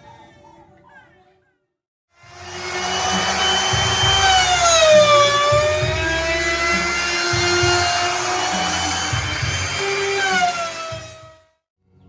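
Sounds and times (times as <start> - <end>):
power tool motor whining: 2.2 - 11.5.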